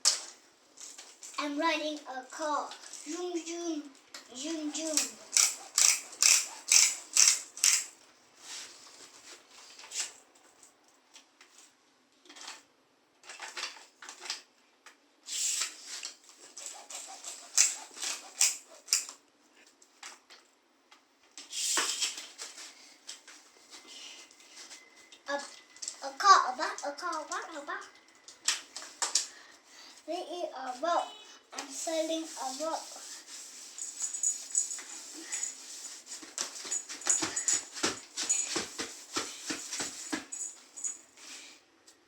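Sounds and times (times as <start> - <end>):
toys clattering: 5.0 - 7.9
rustling: 31.6 - 41.6.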